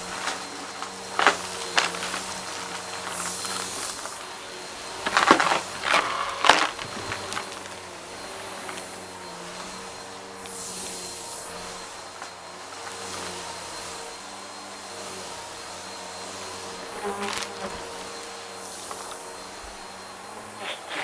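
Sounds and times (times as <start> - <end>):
debris crackling in vacuum: 0.0 - 9.8
vacuum cleaner running: 0.0 - 21.0.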